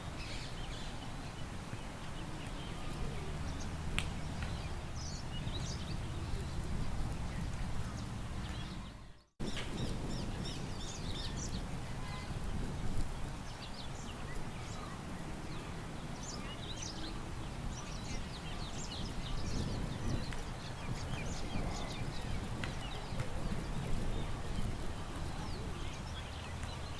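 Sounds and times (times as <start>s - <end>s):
low rush of wind: 0.0s - 26.9s
small birds chirping: 0.1s - 26.9s.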